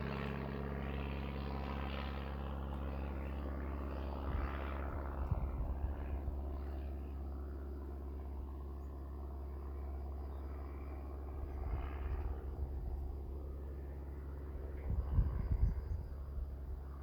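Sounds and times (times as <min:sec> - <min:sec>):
propeller aircraft engine drone: 0:00.0 - 0:17.0
wind buffeting microphone: 0:04.2 - 0:06.5, 0:14.8 - 0:16.9.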